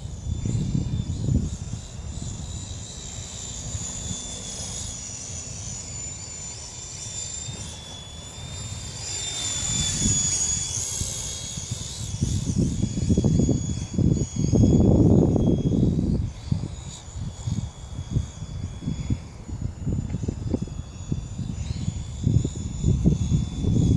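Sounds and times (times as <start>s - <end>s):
wind buffeting microphone: 0.0s - 2.8s, 8.6s - 23.9s
rc helicopter motor whine: 0.0s - 23.9s.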